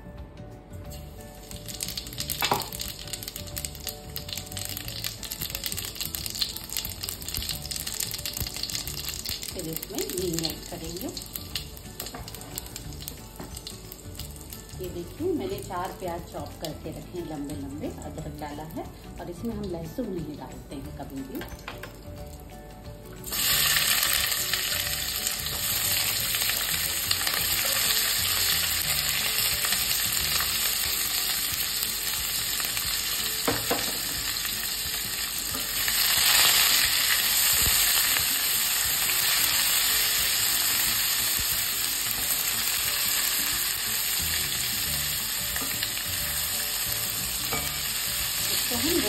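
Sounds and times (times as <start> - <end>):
loud sizzle of frying onions: 0.8 - 49.0
spatula stirring onions: 23.3 - 49.0.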